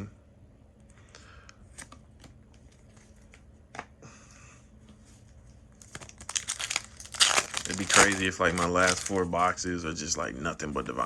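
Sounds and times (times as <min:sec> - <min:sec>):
cards being flipped through: 0:05.8 - 0:09.2
cards rustling: 0:05.8 - 0:09.4.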